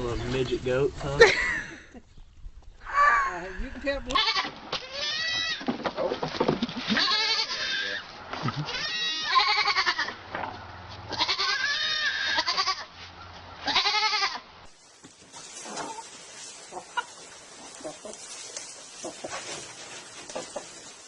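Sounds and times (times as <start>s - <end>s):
goat bleating loudly: 4.1s - 5.6s, 6.9s - 8.0s, 8.6s - 10.2s, 11.1s - 12.9s, 13.6s - 14.4s.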